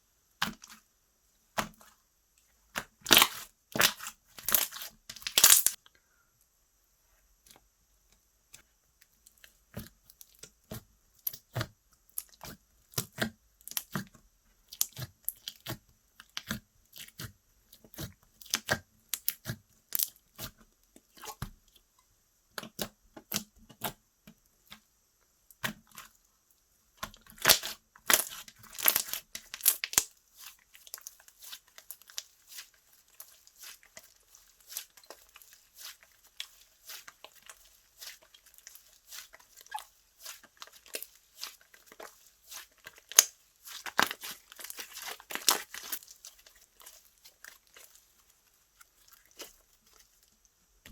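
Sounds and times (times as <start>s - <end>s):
slime sticky pops and crackles: 2.7s - 5.8s, 27.0s - 30.1s, 38.0s - 46.1s.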